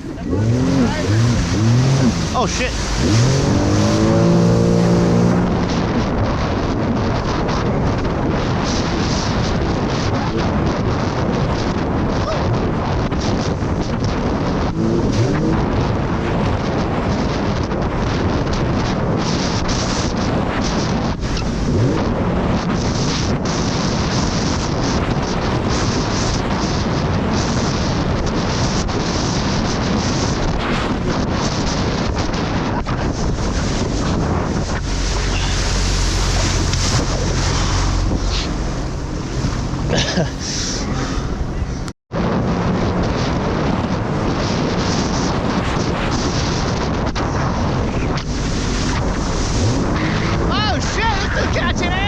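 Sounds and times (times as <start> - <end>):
jet ski engine: 0.0 - 52.0
wind buffeting microphone: 0.0 - 52.0
water spray: 34.5 - 41.4.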